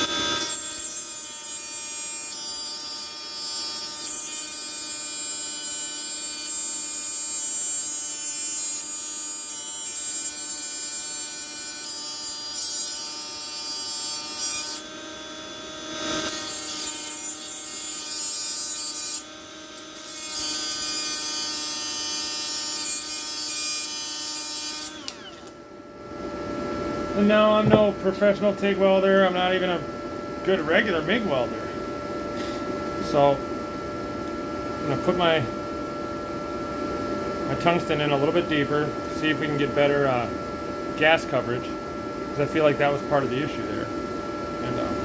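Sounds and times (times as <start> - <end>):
electric grinder grinding: 0.0 - 25.7.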